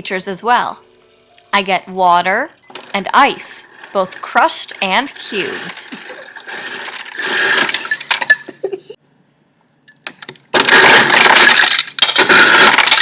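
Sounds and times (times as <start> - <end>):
ice clattering from dispenser: 3.8 - 8.4, 10.6 - 13.0.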